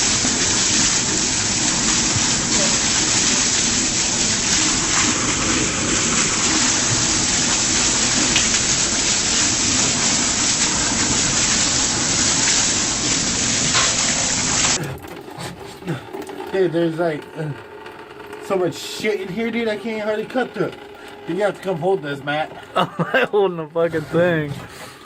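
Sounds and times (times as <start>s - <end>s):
water spraying from cut pipe: 0.0s - 15.6s.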